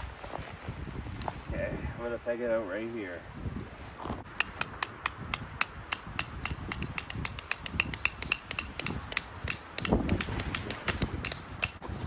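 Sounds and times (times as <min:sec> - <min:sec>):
wind rumbling on microphone: 0:00.0 - 0:12.0
metal tent stake hammered: 0:04.3 - 0:11.8.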